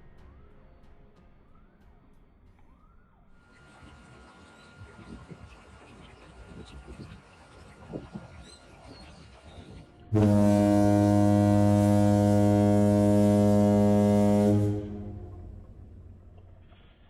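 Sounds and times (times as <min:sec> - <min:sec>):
ship's horn blast: 0:10.1 - 0:16.4.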